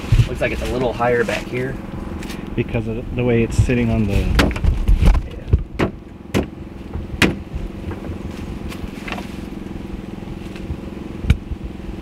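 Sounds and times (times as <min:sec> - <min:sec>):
steady low hum: 0:00.0 - 0:12.0
wooden knocks and bumps: 0:04.3 - 0:08.2.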